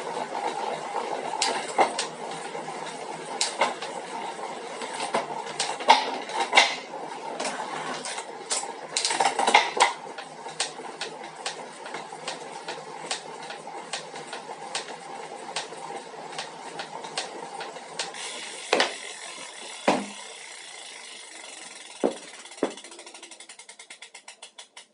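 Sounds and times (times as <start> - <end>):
bike trainer knocking: 9.0 - 24.9.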